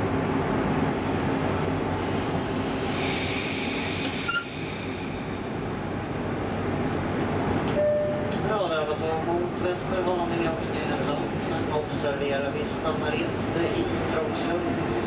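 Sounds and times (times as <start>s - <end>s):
train wheels rumbling on track: 0.0s - 15.0s
hiss: 2.0s - 5.6s.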